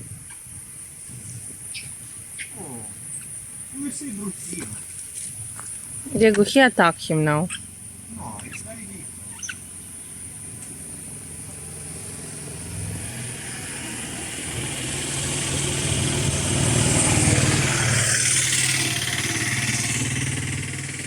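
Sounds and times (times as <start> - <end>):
vehicle engine passing: 6.1 - 21.0.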